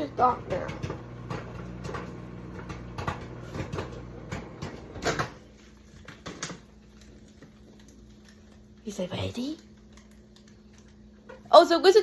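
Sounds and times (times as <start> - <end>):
popcorn popping: 0.0 - 8.8
microwave oven humming: 0.0 - 12.0.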